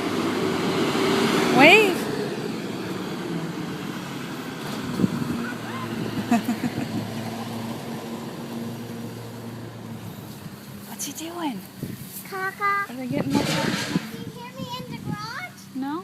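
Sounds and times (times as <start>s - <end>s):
garbage truck engine running: 0.0s - 10.8s.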